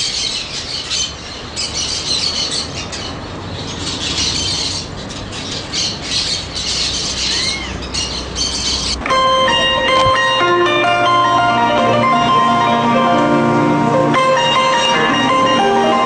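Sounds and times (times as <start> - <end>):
many birds calling: 0.0 - 13.3
music with plucked and mallet notes: 9.0 - 16.0.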